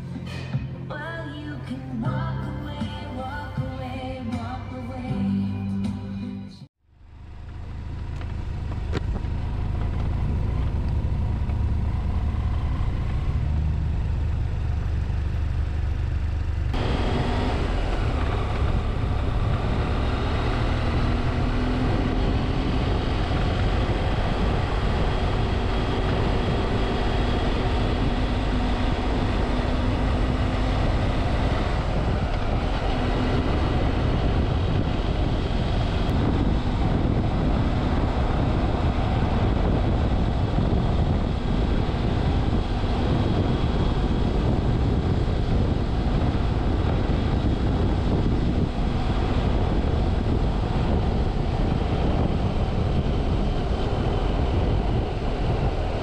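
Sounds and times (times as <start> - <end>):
motorcycle engine rumble: 0.0 - 6.1, 6.8 - 56.0
wind rushing over microphone: 16.7 - 56.0.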